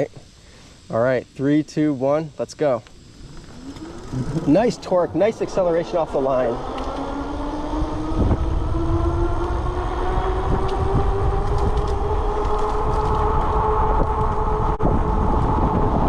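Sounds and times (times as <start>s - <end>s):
electric motor whining: 2.8s - 16.0s
wind rumble on microphone: 3.0s - 16.0s.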